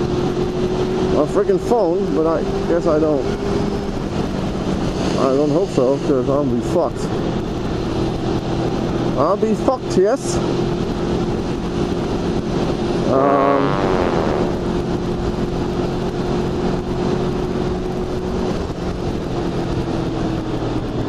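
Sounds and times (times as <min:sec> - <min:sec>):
motorcycle engine running: 0:00.0 - 0:21.0
rushing wind noise: 0:00.0 - 0:21.0
short vocal sound: 0:13.0 - 0:14.6.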